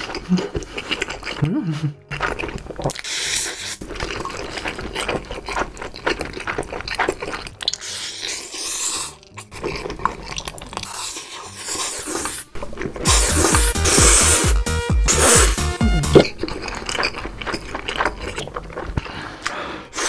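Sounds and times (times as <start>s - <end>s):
slurping and chewing noodles: 0.0s - 20.0s
bass-heavy music beat: 13.0s - 16.3s.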